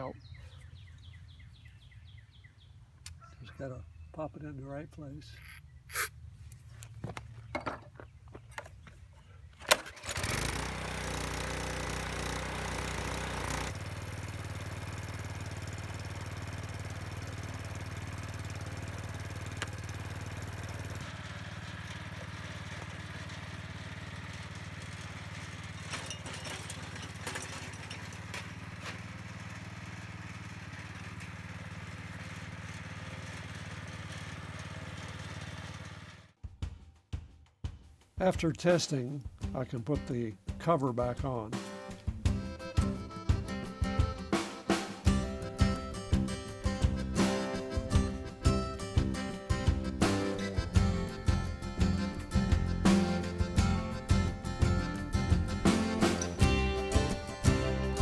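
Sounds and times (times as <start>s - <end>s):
engine starting bang: 9.6s - 10.4s
small gasoline engine running: 9.6s - 36.4s, 42.4s - 58.0s.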